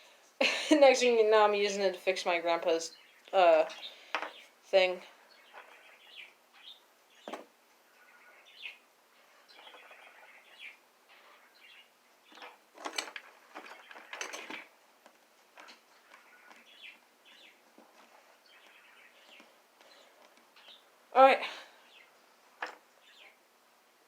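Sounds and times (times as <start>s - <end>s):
faint birds chirping: 0.0s - 24.0s
rustling: 12.2s - 20.9s.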